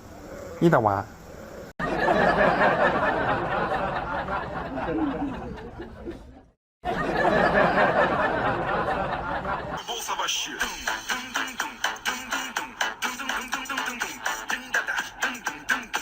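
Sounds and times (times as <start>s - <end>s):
people laughing and chattering: 1.8s - 13.0s.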